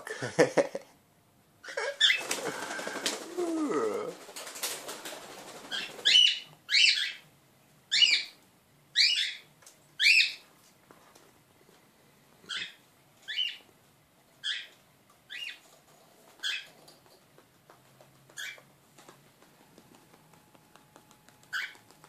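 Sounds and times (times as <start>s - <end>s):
pet bird calling: 5.7s - 7.2s, 9.0s - 10.4s, 12.5s - 13.6s, 14.4s - 14.7s, 16.4s - 16.7s, 18.3s - 18.7s, 21.4s - 22.0s.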